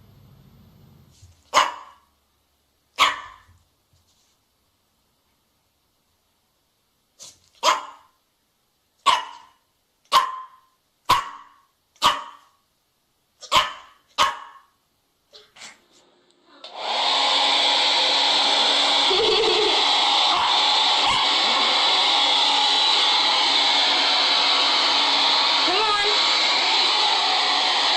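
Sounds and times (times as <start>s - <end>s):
dog barking: 1.5s - 2.1s, 3.0s - 3.5s, 7.6s - 8.2s, 9.0s - 12.6s, 13.4s - 14.8s
hair dryer running: 16.6s - 27.9s.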